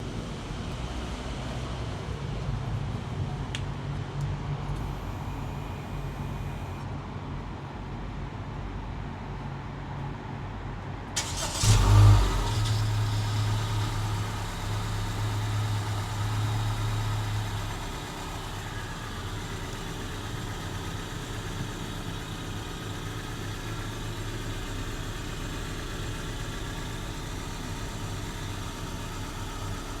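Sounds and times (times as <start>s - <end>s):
car starter cranking: 11.2s - 13.2s
car engine idling: 11.2s - 30.0s.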